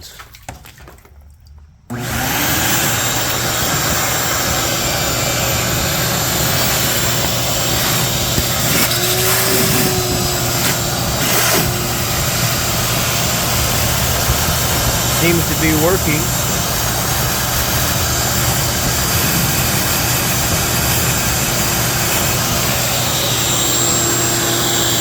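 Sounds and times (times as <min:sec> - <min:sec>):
shop vacuum running: 0:01.9 - 0:25.0
vacuum sucking water: 0:01.9 - 0:25.0.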